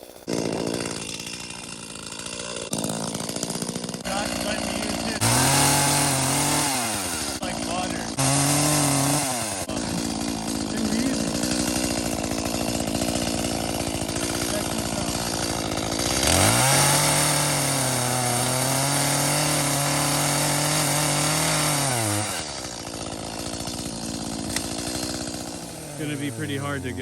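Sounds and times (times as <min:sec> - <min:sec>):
chainsaw revving and idling: 0:00.0 - 0:27.0.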